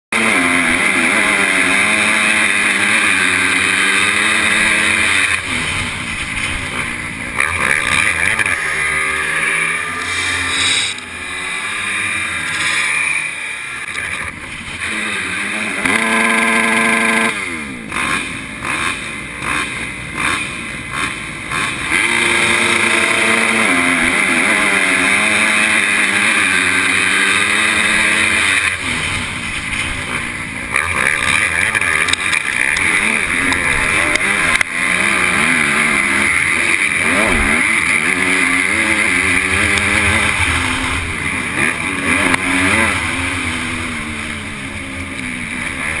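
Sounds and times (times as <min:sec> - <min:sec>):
motocross bike engine revving: 0:00.1 - 0:46.0.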